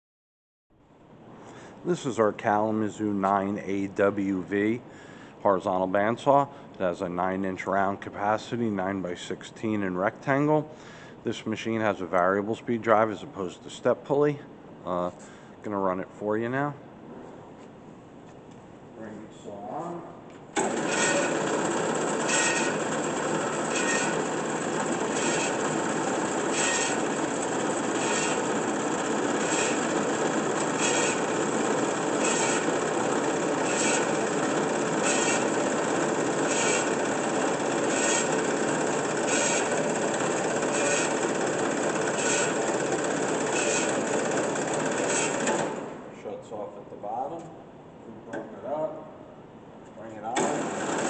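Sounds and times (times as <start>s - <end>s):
band saw cutting: 20.6s - 46.0s, 50.4s - 51.0s.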